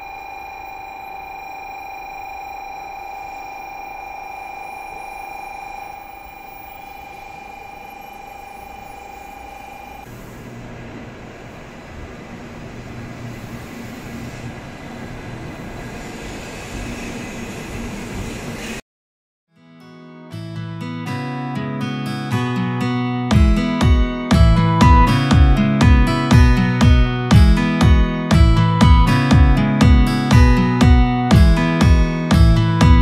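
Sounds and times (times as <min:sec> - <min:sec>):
steady electronic tone: 0:00.0 - 0:10.5
low train hum: 0:06.0 - 0:18.8
train wheel and air rush: 0:10.0 - 0:18.8.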